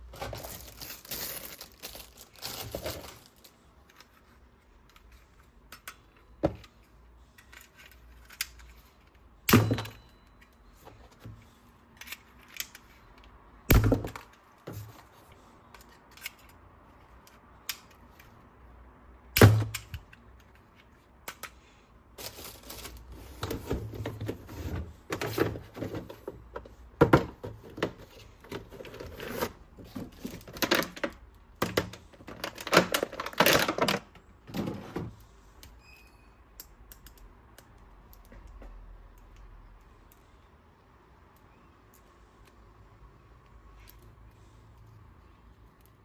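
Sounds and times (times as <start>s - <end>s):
plastic packaging rustling: 0.0s - 4.3s, 22.2s - 26.5s, 27.1s - 34.7s
plastic toys clicking and knocking: 29.8s - 34.4s.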